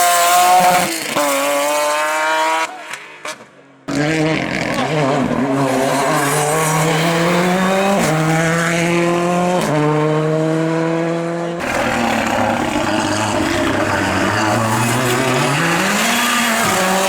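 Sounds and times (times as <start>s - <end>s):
race car engine accelerating: 3.9s - 17.0s.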